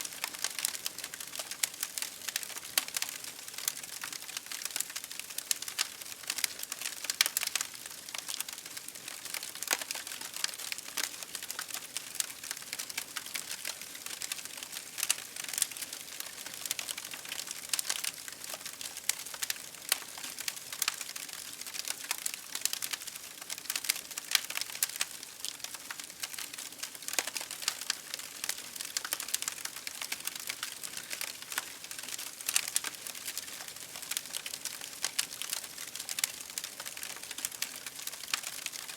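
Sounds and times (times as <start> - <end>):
campfire crackling: 0.1 - 38.9.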